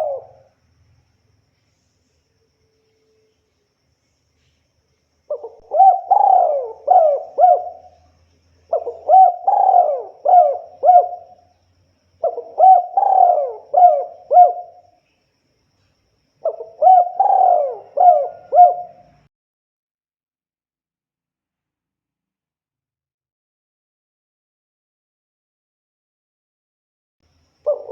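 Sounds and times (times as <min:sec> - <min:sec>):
dove cooing: 0:00.0 - 0:00.5, 0:05.3 - 0:08.1, 0:08.7 - 0:11.4, 0:12.2 - 0:14.8, 0:16.4 - 0:19.2, 0:27.7 - 0:27.9.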